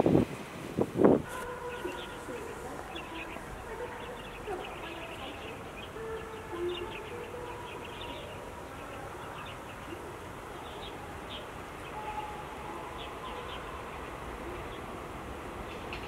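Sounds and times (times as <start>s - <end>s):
small birds chirping: 1.3s - 15.0s.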